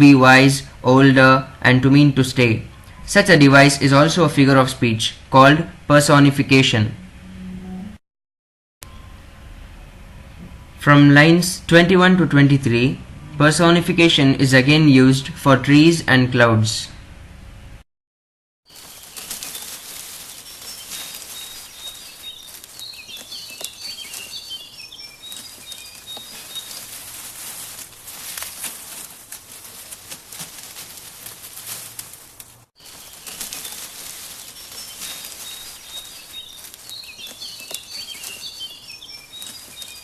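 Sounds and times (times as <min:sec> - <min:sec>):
small birds chirping: 0:18.7 - 0:40.0
steady rushing hiss: 0:18.7 - 0:40.0.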